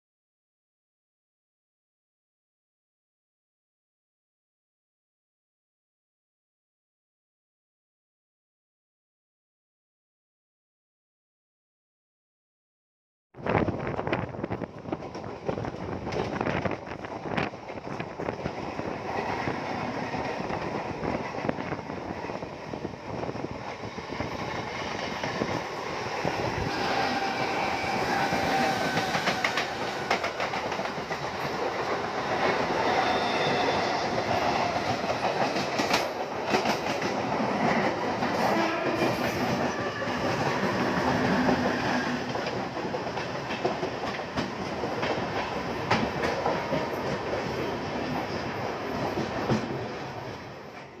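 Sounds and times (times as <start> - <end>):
train rumbling along track: 13.4 - 51.0.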